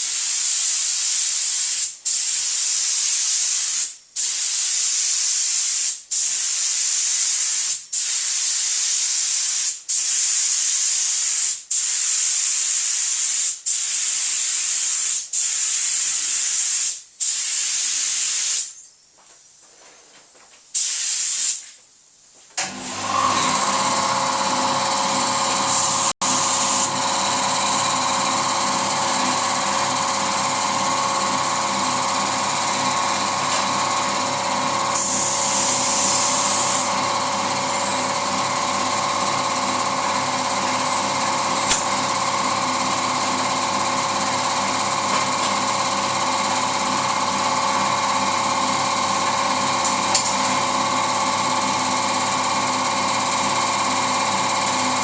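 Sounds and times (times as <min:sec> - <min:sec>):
spray gun hiss: 0:00.0 - 0:18.8, 0:20.7 - 0:21.8, 0:23.7 - 0:45.4
air compressor motor drone: 0:22.6 - 0:55.0.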